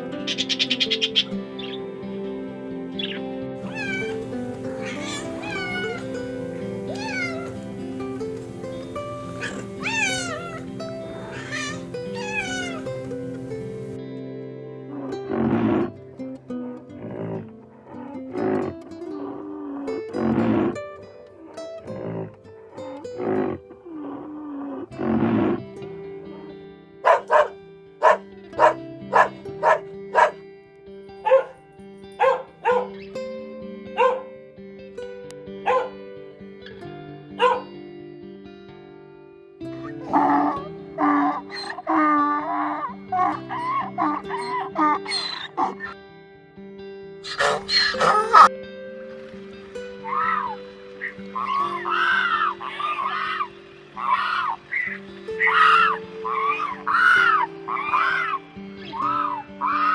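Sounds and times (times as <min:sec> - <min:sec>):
soft background music: 0:00.0 - 0:59.9
cat meowing: 0:03.6 - 0:07.9, 0:09.2 - 0:14.0, 0:47.3 - 0:48.5, 0:50.1 - 0:54.6, 0:55.4 - 0:59.9
dog barking: 0:03.7 - 0:07.6, 0:09.3 - 0:10.6, 0:11.2 - 0:12.8, 0:27.0 - 0:30.4, 0:31.2 - 0:31.6, 0:32.2 - 0:33.0, 0:34.0 - 0:34.3, 0:35.6 - 0:36.0, 0:37.4 - 0:37.8, 0:43.2 - 0:46.0, 0:47.3 - 0:48.5.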